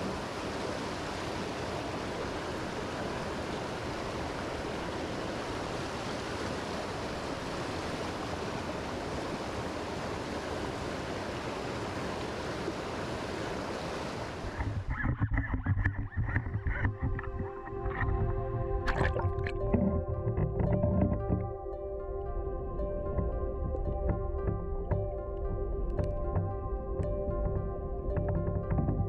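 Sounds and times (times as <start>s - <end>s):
stream water rushing: 0.0s - 15.5s, 16.1s - 23.3s
music: 15.9s - 29.0s.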